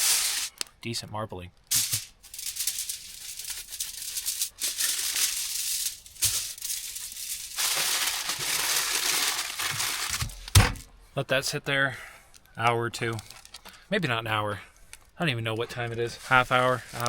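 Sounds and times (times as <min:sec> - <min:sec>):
seasoning shaker rattling: 0:01.7 - 0:09.1.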